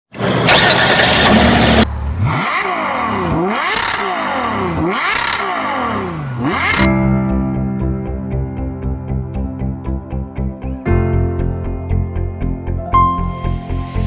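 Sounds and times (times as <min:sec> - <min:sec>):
engine revving: 0:00.1 - 0:06.9.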